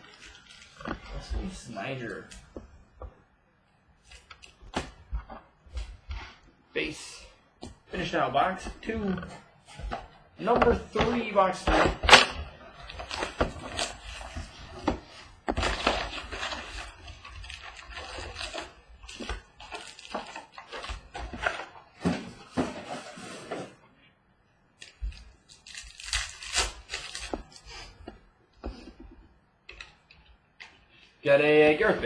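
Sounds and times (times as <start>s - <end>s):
foil pack tearing and crinkling: 15.6s - 20.7s, 24.8s - 27.4s.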